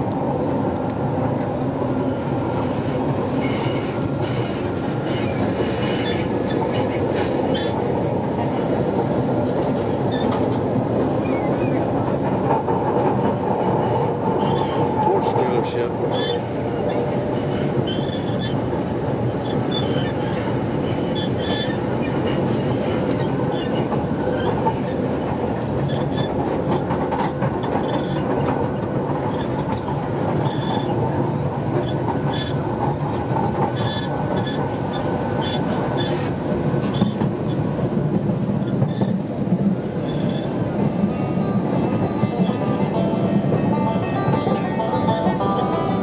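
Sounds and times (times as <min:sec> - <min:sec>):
wheels rumbling on rail: 0:00.0 - 0:46.0
high wheel squeals: 0:02.9 - 0:07.8.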